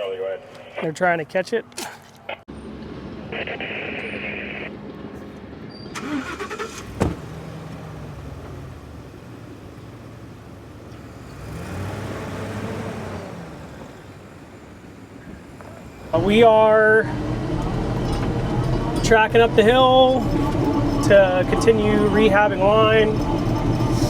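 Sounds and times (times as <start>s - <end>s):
diesel engine running: 2.3s - 24.0s
radio hiss: 3.3s - 4.7s.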